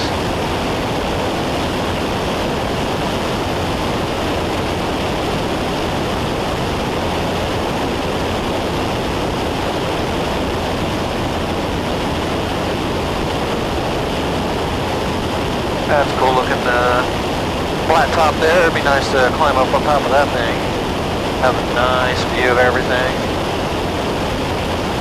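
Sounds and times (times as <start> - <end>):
aircraft engine drone: 0.0 - 25.0
rushing air in cabin: 0.0 - 25.0.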